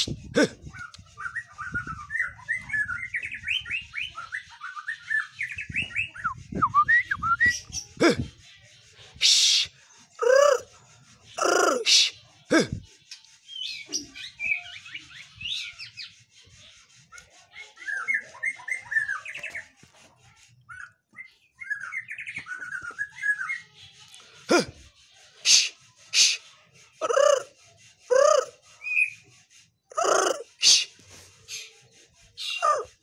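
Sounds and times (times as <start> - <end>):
harsh bird calls: 7.2 - 19.7, 20.8 - 33.0.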